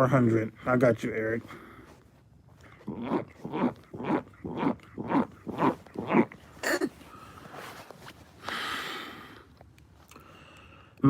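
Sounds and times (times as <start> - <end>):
man making vocal noises: 2.7 - 7.0
breathy hiss: 6.5 - 11.0.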